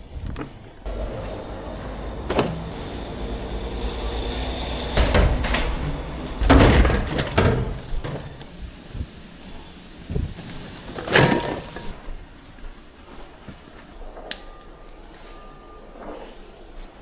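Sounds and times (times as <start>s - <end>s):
rolling rumble: 0.0s - 12.8s
knocks and clatters: 4.9s - 8.4s.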